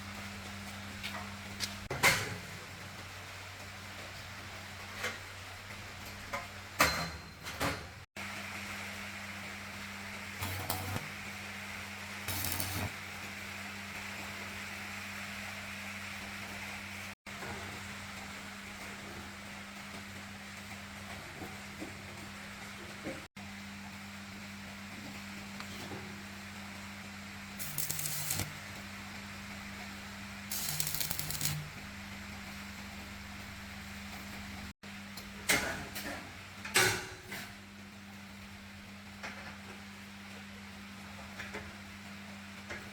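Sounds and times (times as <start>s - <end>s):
low mechanical hum: 0.0s - 42.9s
motor humming: 12.3s - 12.9s, 27.6s - 28.5s, 30.5s - 31.6s
compressed air hissing: 27.6s - 28.5s, 30.5s - 31.6s.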